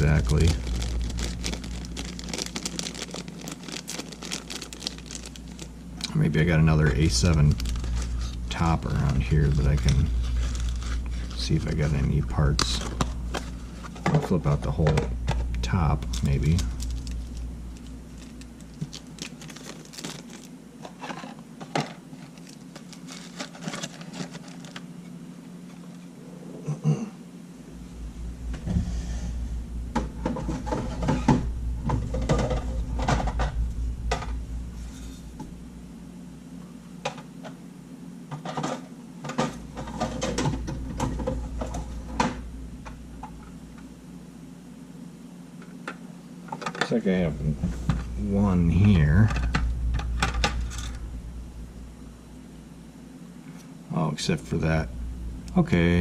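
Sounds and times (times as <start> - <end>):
hands rummaging through parts: 0.0 - 5.7, 16.0 - 24.9
low electrical hum: 0.0 - 56.0.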